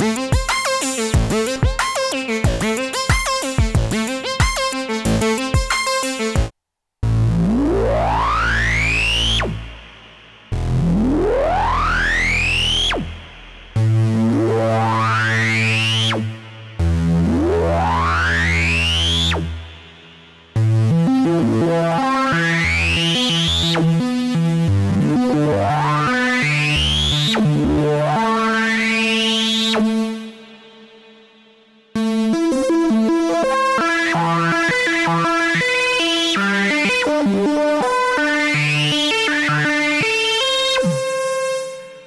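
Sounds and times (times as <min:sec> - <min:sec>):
synthesizer held low notes: 0:06.4 - 0:31.2
synthesizer rising sweeps: 0:07.4 - 0:23.4.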